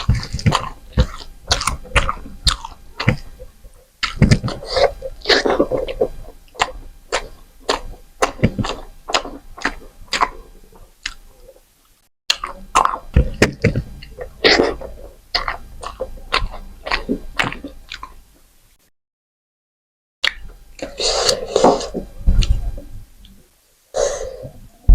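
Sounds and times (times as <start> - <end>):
wet chewing and lip smacks: 0.0 - 18.2.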